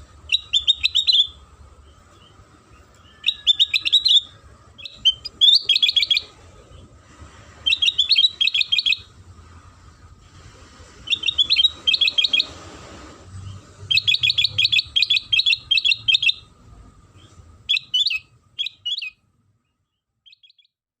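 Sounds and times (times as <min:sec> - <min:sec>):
bulbul singing bright chirps: 0:00.2 - 0:06.8, 0:07.7 - 0:09.1, 0:11.0 - 0:12.5, 0:13.4 - 0:16.5, 0:17.2 - 0:20.8.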